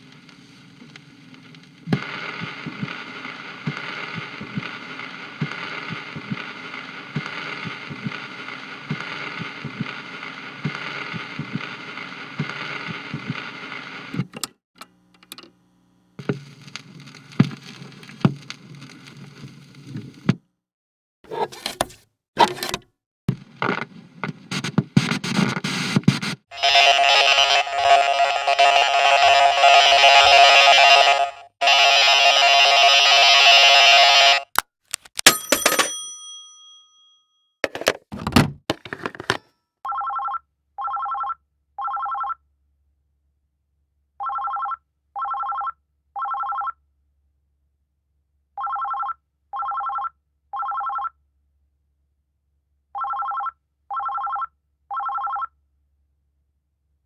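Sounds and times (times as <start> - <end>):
sharp clicks: 34.5 - 35.3.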